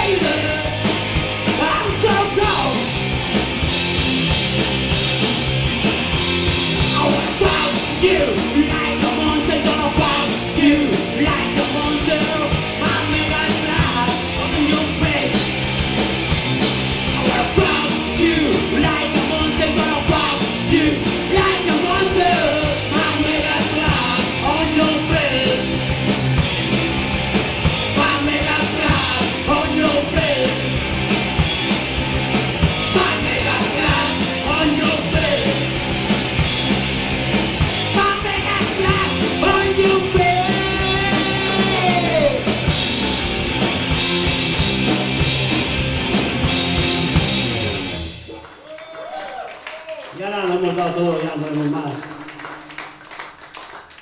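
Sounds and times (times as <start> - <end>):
punk rock band playing: 0.0 - 48.6, 50.6 - 54.0
person shouting lead vocal: 1.6 - 2.8, 6.9 - 15.4, 17.2 - 25.6, 32.8 - 35.6, 37.9 - 42.4.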